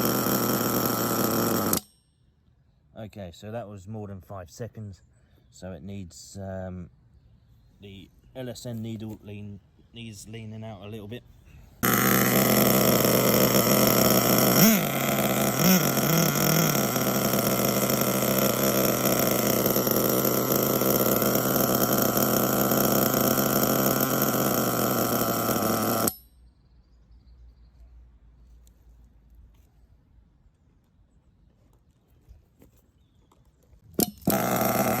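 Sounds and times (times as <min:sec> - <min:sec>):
engine throttle blips: 0:00.0 - 0:01.9, 0:11.8 - 0:26.2, 0:34.0 - 0:35.0
high buzzing nitro engine: 0:00.0 - 0:01.9, 0:11.8 - 0:26.2, 0:34.0 - 0:35.0.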